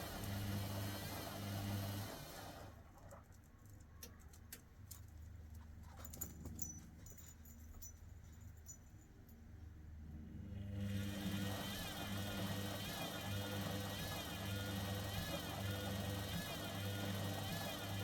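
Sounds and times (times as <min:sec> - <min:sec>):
washing machine drum motor hum: 0:00.0 - 0:02.7, 0:10.8 - 0:18.0.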